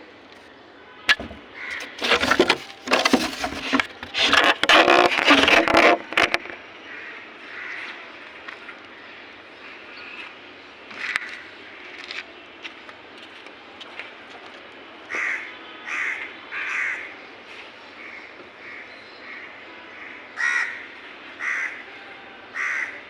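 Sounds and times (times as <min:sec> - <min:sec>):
crows cawing: 0:06.9 - 0:08.0, 0:15.1 - 0:17.1, 0:18.1 - 0:21.8, 0:22.5 - 0:23.0.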